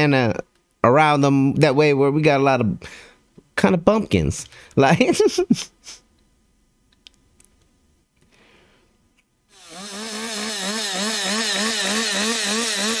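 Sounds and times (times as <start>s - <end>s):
faint clicks: 6.9s - 8.4s
chainsaw running: 9.5s - 13.0s.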